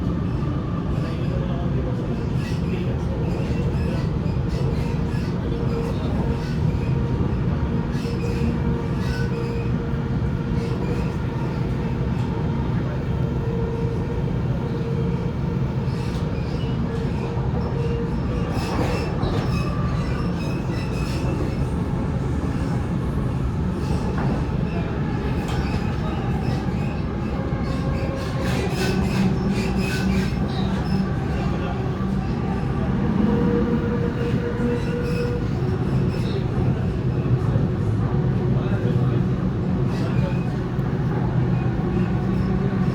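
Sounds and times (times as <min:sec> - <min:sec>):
constant train hum: 0:00.0 - 0:42.9
train wheels rumbling on track: 0:00.0 - 0:42.9.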